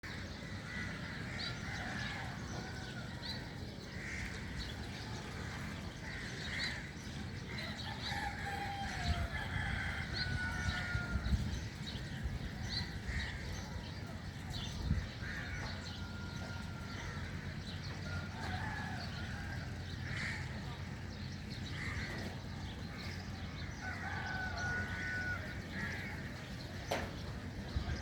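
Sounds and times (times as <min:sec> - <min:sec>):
birds chirping: 0:00.0 - 0:28.0
distant rooster crowing: 0:07.6 - 0:11.6, 0:15.6 - 0:20.0, 0:23.5 - 0:27.4.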